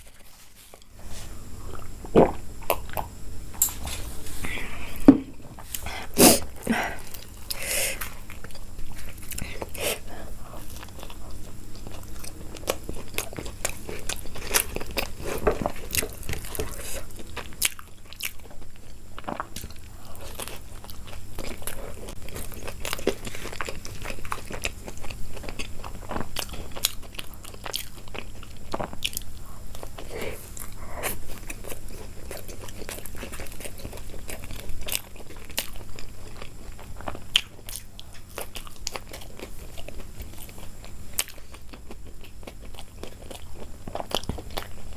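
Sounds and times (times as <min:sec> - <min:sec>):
person chewing crunchy food: 0:00.0 - 0:44.9.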